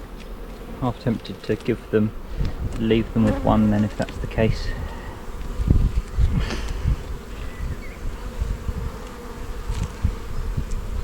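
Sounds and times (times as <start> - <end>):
honey bees buzzing: 0.0 - 11.0
dull low bumps: 2.1 - 9.0.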